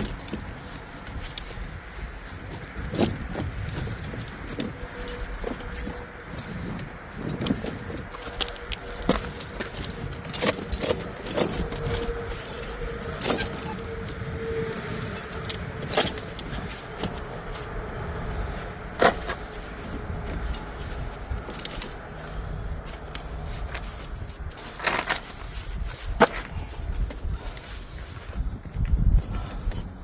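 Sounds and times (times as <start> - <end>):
tire chain links jangling: 0.0 - 30.0
sharp metallic clanks: 7.3 - 14.0, 14.7 - 17.5.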